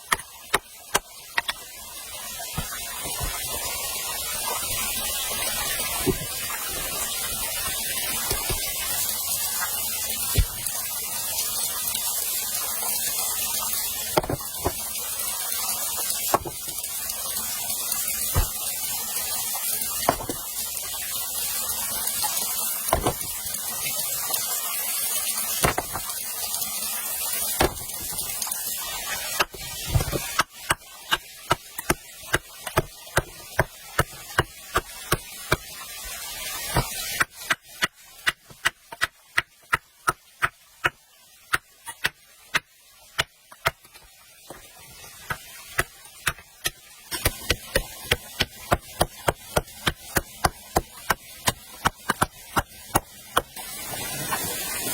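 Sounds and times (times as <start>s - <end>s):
sharp chopping strikes: 10.3s - 10.7s, 16.3s - 16.6s, 18.4s - 18.6s, 20.1s - 20.4s, 22.9s - 23.3s, 27.6s - 28.2s.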